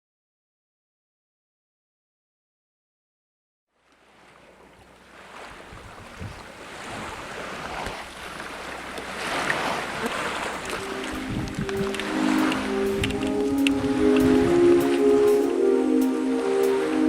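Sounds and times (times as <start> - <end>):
wind: 3.7 - 17.0
water rushing against boat hull: 3.9 - 17.0.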